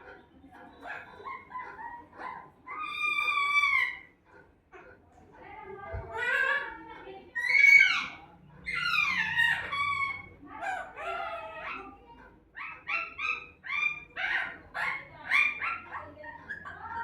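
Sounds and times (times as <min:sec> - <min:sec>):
parrot squawking: 0:02.7 - 0:04.1, 0:07.4 - 0:11.8, 0:12.6 - 0:17.0.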